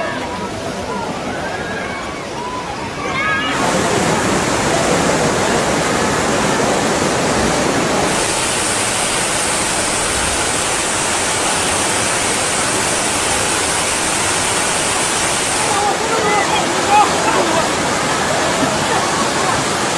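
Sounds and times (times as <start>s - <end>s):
rushing water: 0.0s - 19.9s
bright hiss: 8.1s - 16.2s.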